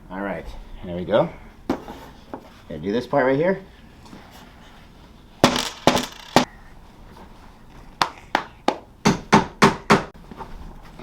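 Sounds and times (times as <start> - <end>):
hammer knocking nails into wood: 8.7 - 10.1.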